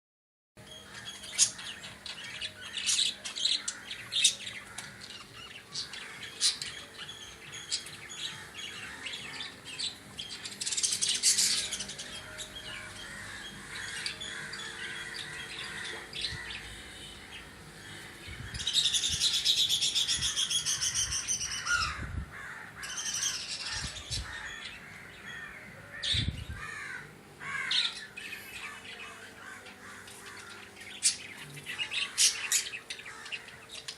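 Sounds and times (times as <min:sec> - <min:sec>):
birds chirping and squawking: 0:00.6 - 0:33.9.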